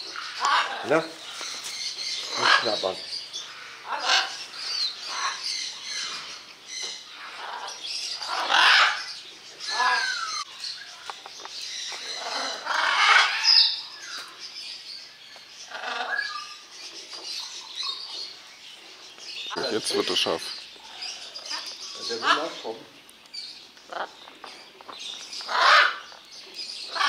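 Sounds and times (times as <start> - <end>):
birds squawking and chirping: 0.0 - 27.0.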